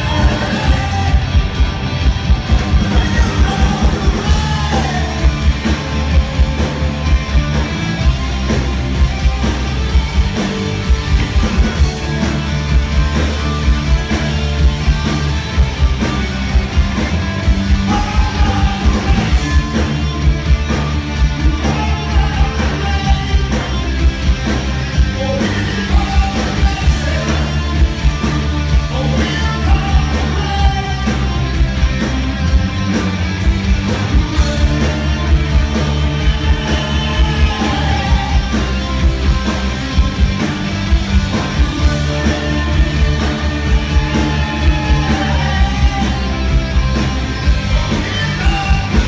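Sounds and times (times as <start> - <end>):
lead vocal singing: 0.0 - 1.7, 2.6 - 5.7, 17.6 - 20.2, 21.4 - 24.0, 25.0 - 31.4, 34.0 - 39.2, 41.5 - 47.0, 47.7 - 49.0
rock band playing live: 0.0 - 49.0
drum beat: 2.2 - 20.6.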